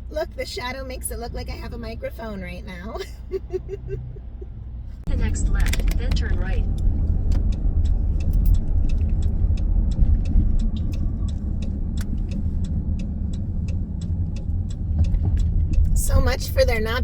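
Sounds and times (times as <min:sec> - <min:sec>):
road and engine rumble: 0:00.0 - 0:17.0.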